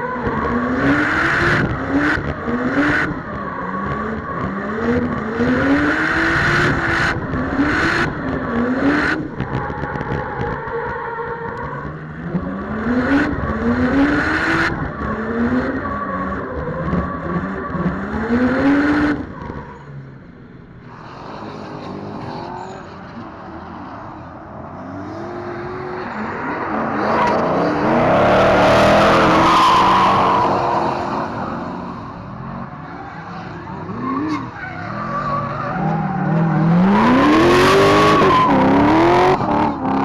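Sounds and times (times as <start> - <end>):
car engines revving hard: 0.0 - 40.0
tyre squeal: 26.1 - 40.0.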